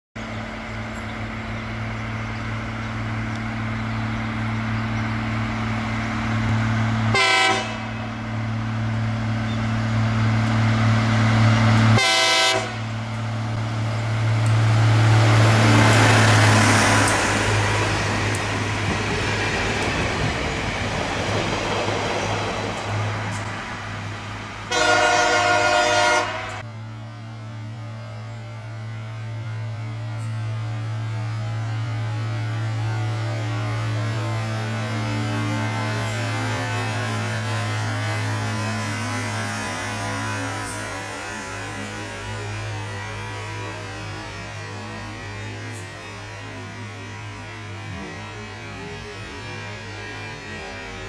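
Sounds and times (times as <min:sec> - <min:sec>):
diesel locomotive engine and wheels: 0:00.2 - 0:51.0
train horn blasts: 0:07.1 - 0:08.1, 0:11.8 - 0:13.0, 0:24.7 - 0:26.7, 0:34.0 - 0:43.3.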